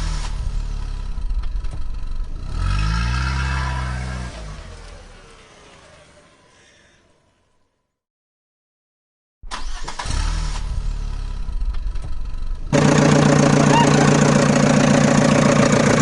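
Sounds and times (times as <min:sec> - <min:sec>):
motor running hum: 0:12.7 - 0:16.0.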